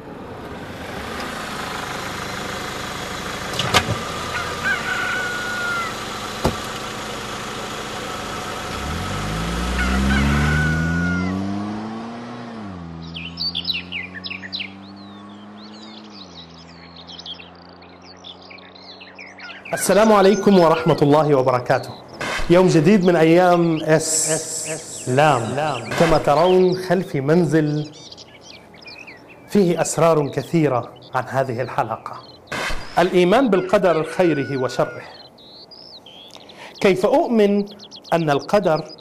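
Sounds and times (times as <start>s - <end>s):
birds chirping: 0.0s - 39.0s
car engine humming: 0.0s - 39.0s
traffic noise: 0.0s - 39.0s
sharp knocks: 6.4s - 6.8s.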